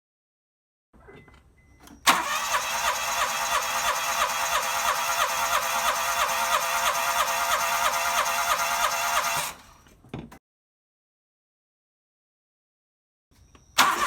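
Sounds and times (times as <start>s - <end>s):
starter motor cranking engine: 2.0s - 9.8s, 13.8s - 14.0s.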